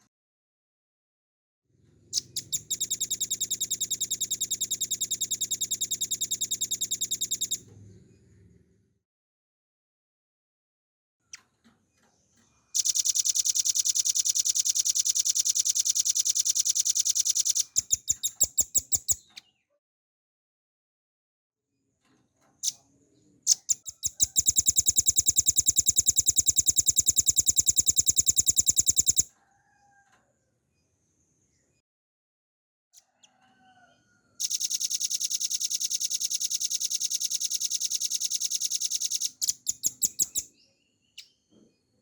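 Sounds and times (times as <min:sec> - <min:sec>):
bird singing rapid high trills: 0:02.2 - 0:07.6, 0:12.8 - 0:19.2, 0:23.5 - 0:29.3, 0:34.4 - 0:40.6.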